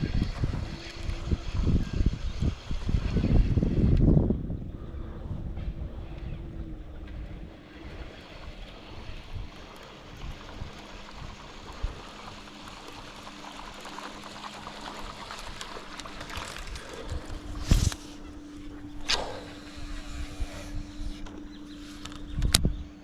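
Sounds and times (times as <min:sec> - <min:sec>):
steady low hum: 0:00.0 - 0:23.0
water around boat: 0:00.0 - 0:23.0
wind: 0:00.0 - 0:23.0.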